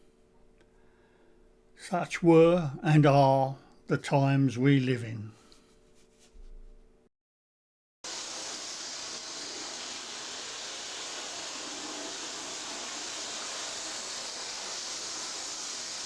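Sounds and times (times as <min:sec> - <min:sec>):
model train whirring: 0:08.1 - 0:16.0.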